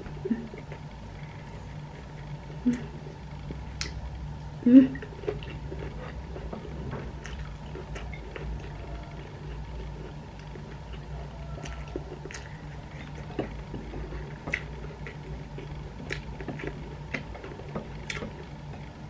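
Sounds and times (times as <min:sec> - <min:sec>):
low hum: 0:00.0 - 0:19.0
chewing with wet smacks: 0:05.0 - 0:19.0.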